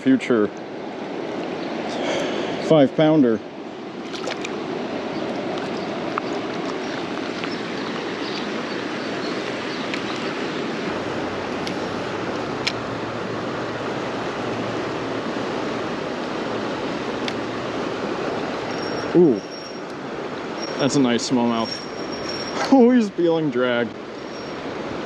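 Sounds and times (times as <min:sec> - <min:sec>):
flowing river water: 0:00.0 - 0:25.0.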